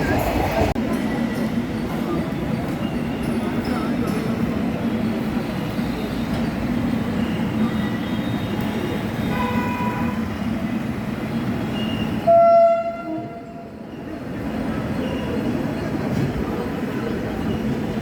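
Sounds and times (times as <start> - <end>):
train coaches rumbling: 0.0 - 18.0
train horn blast: 12.2 - 13.6.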